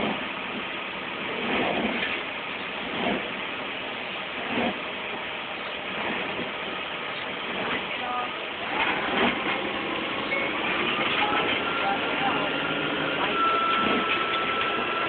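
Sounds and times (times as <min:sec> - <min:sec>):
rain hiss: 0:00.0 - 0:15.0
thin faint high tone: 0:09.5 - 0:15.0.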